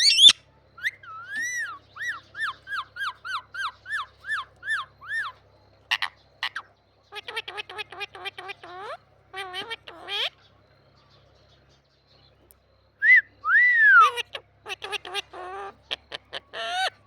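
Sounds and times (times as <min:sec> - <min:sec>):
parakeet calling: 0:00.0 - 0:10.4, 0:13.9 - 0:17.0.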